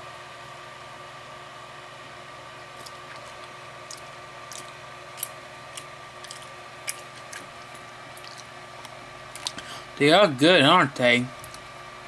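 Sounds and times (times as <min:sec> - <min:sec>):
background hum: 0:00.0 - 0:12.0
person chewing: 0:02.7 - 0:09.7
wet mouth clicks: 0:02.8 - 0:07.5, 0:08.2 - 0:09.6.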